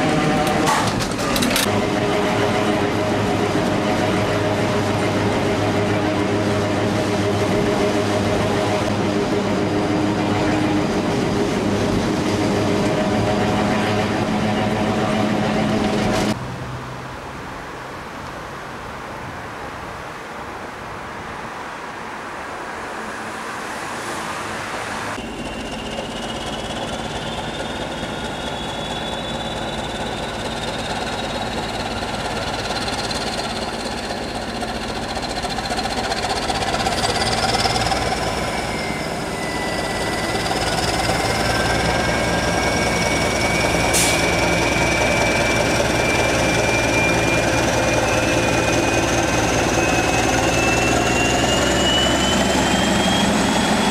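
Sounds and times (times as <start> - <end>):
train running: 0.0 - 16.4, 23.0 - 53.9
high whine rising in pitch: 25.1 - 53.9.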